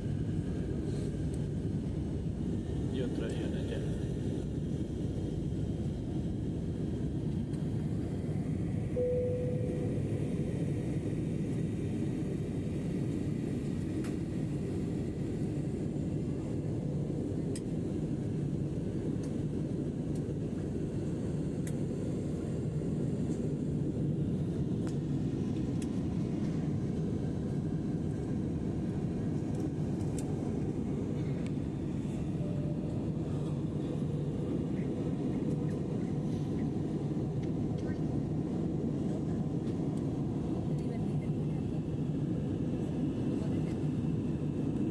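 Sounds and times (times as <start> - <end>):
airliner cabin rumble: 0.0 - 44.9
brief cabin tone: 9.0 - 10.2, 32.4 - 33.6.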